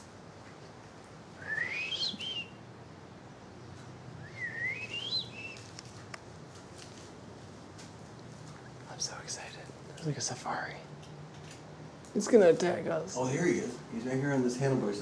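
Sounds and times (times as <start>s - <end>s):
parakeet whistling: 1.4s - 2.6s, 4.2s - 5.6s.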